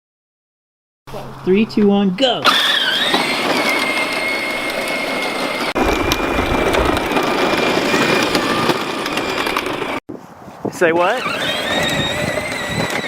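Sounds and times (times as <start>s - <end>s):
wheels rolling: 2.4s - 10.0s, 11.0s - 13.0s
electric motor whine: 2.5s - 10.0s, 11.2s - 13.0s
deep rumble: 5.8s - 10.0s.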